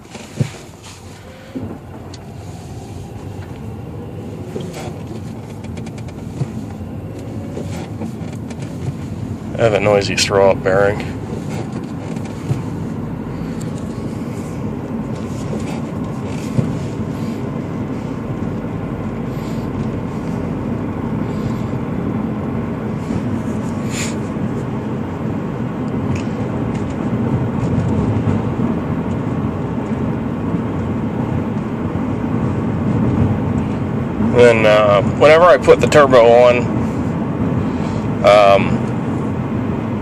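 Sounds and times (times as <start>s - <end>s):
clutch bearing noise: 0.0s - 24.6s
car engine running: 0.0s - 40.0s.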